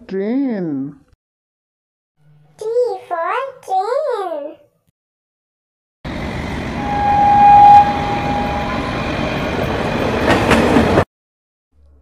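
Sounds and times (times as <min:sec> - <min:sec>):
train rumbling: 0:06.1 - 0:11.0
train whistle: 0:06.7 - 0:09.5.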